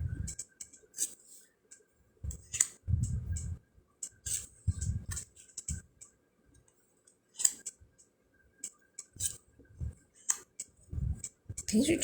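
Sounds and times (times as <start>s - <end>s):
cards sliding clicks and swishes: 7.4s - 7.8s.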